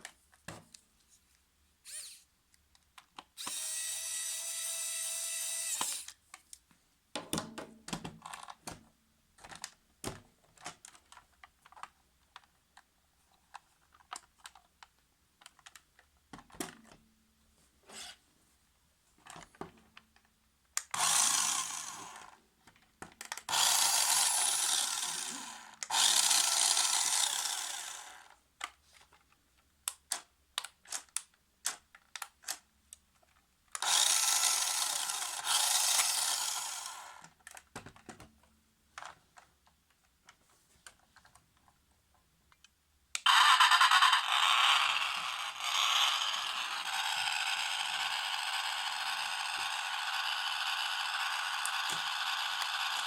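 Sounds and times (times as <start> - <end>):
toy car electric motor whirring: 1.8 - 2.3, 3.4 - 6.2, 20.9 - 22.4, 23.4 - 28.4, 33.8 - 37.3, 43.2 - 53.0.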